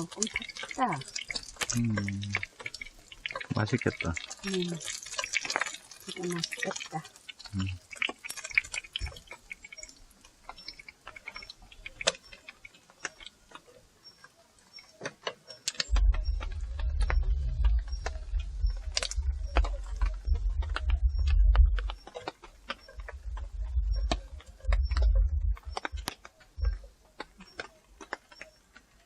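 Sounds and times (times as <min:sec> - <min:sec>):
low rumble: 0:15.9 - 0:22.1, 0:22.7 - 0:26.9.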